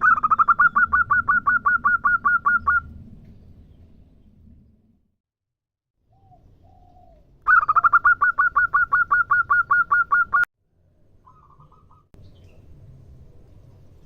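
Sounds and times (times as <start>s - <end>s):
dove cooing: 6.1s - 10.5s.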